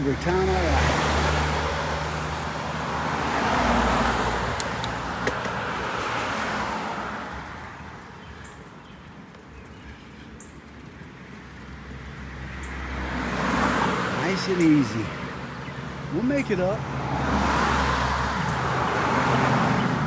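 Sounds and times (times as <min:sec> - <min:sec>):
vehicle passing on road: 0:00.0 - 0:09.8, 0:10.7 - 0:20.0.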